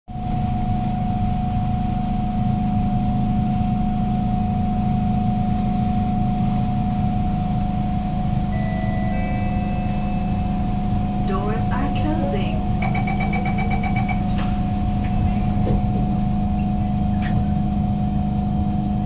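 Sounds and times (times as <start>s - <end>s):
train equipment hum and whine: 0.1s - 19.0s
higher tones: 8.5s - 14.3s.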